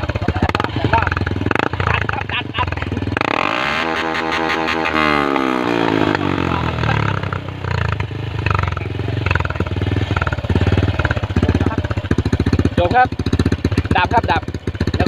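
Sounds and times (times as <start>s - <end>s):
motorcycle engine revving and idling: 0.0s - 15.0s.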